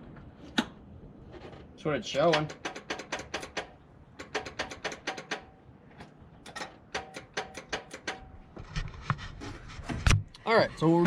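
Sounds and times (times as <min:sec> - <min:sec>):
rapid metallic clicking: 0:02.2 - 0:05.5.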